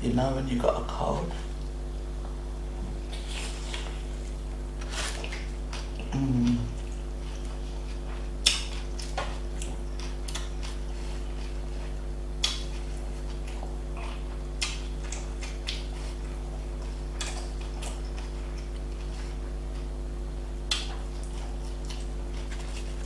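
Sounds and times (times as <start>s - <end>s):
low electrical hum: 0.0s - 23.0s
mouth clicks and smacks chewing: 5.2s - 11.6s, 12.4s - 19.1s, 20.6s - 23.0s.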